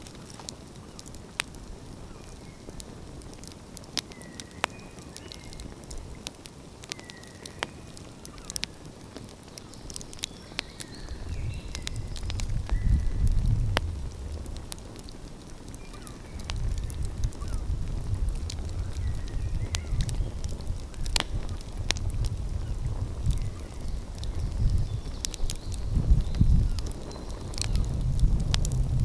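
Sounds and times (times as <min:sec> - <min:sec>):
fire popping: 0:00.0 - 0:29.0
wood fire crackling: 0:00.0 - 0:29.0
low rumble: 0:27.7 - 0:29.0.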